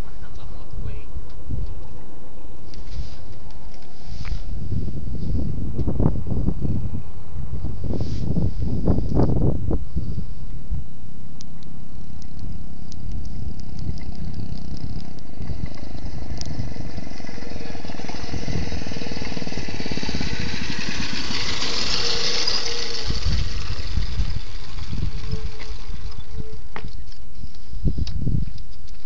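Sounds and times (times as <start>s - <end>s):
mini bike engine running: 13.0s - 27.5s.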